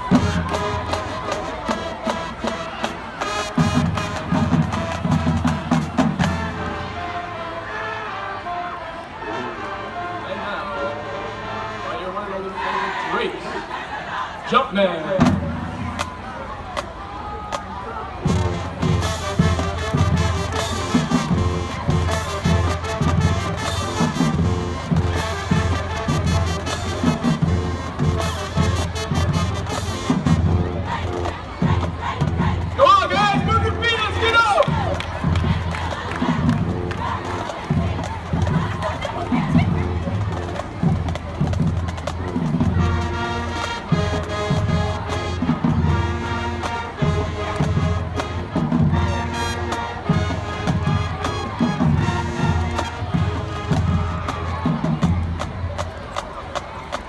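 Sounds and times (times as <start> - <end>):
marching band brass: 0.0 - 57.0.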